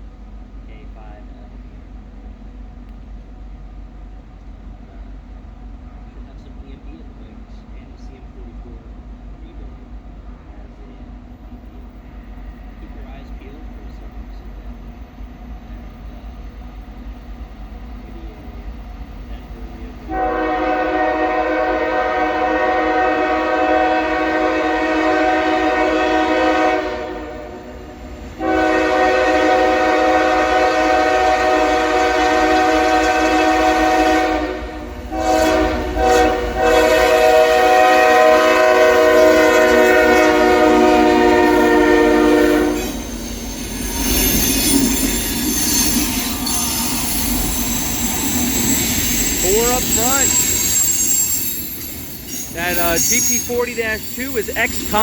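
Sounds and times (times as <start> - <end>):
freight train rumbling past: 0.0 - 55.0
locomotive air horn: 20.1 - 43.1, 52.3 - 55.0
wheels on rails: 42.8 - 55.0.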